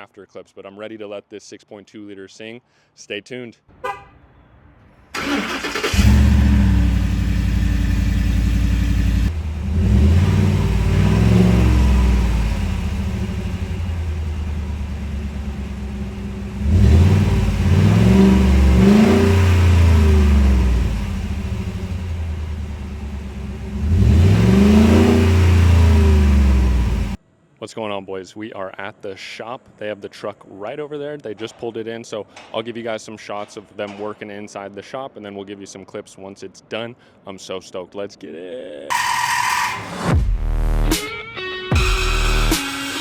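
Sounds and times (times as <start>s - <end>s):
engine cranking and starting: 5.1s - 27.2s
engine idling and revving: 5.2s - 27.2s.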